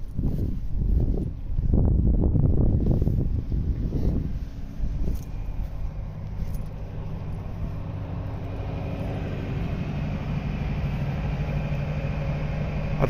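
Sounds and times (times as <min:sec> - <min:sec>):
generator engine humming: 0:00.0 - 0:13.0.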